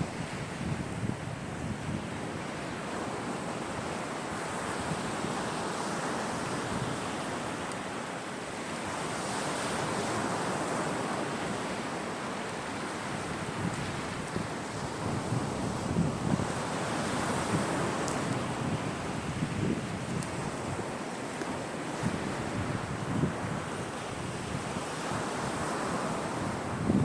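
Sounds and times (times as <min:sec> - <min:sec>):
wind on microphone: 0:00.0 - 0:07.7, 0:08.7 - 0:27.0
surf washing onto shore: 0:00.0 - 0:27.0.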